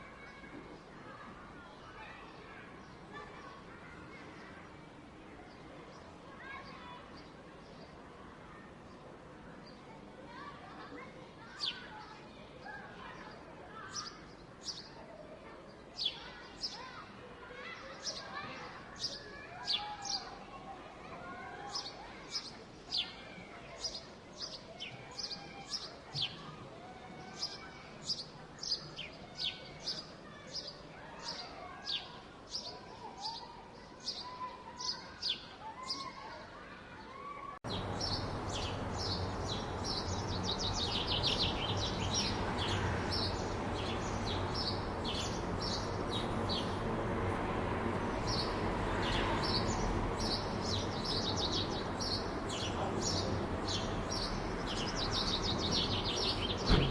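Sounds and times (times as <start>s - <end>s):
small birds chirping: 0.0s - 15.0s, 15.7s - 20.5s, 21.3s - 26.6s, 27.2s - 36.3s, 37.7s - 56.9s
city hum: 37.6s - 56.9s.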